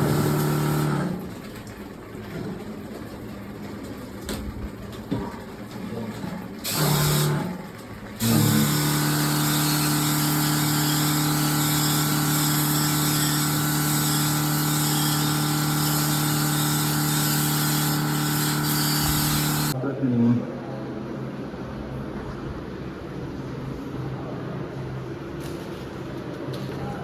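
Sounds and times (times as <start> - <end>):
electric machine humming: 0.0 - 1.2, 8.2 - 19.8.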